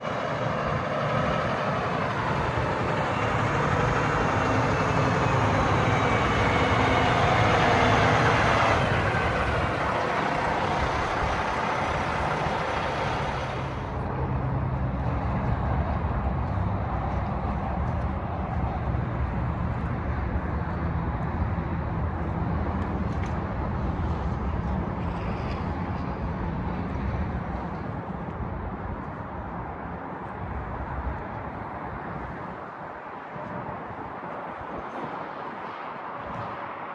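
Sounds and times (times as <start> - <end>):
dump truck diesel engine running: 0.0 - 20.9.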